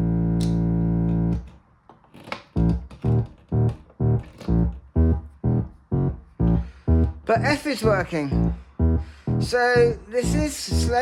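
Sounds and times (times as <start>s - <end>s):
synthesizer drone: 0.0s - 1.4s, 2.6s - 9.6s
short plucked synthesizer notes: 2.6s - 11.0s.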